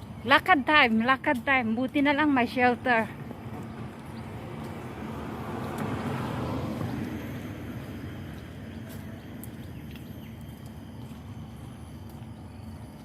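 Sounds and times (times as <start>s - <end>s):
low steady hum: 0.0s - 13.0s
vehicle passing: 2.7s - 13.0s.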